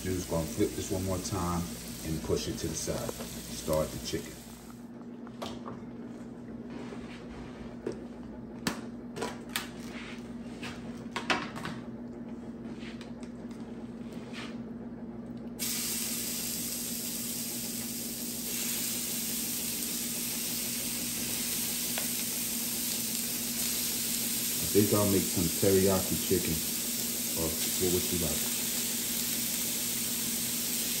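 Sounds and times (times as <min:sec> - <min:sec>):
chicken frying sizzle: 0:00.0 - 0:04.7, 0:15.6 - 0:31.0.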